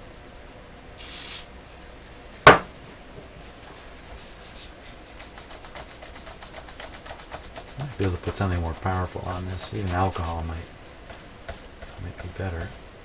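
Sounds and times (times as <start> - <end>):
cloth rubbing on metal: 1.0 - 1.5, 3.5 - 12.8
sharp knock: 2.5 - 2.7.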